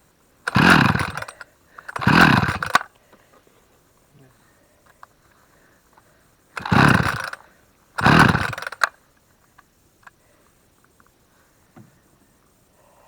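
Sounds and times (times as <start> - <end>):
chainsaw starter cord pulls: 0.5 - 2.9, 6.6 - 7.4, 8.0 - 9.0.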